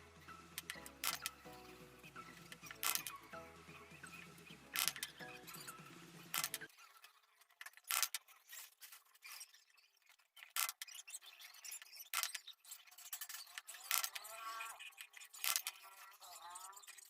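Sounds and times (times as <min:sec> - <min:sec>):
wire snipping with hand tool: 0:02.6 - 0:03.2, 0:06.3 - 0:06.6.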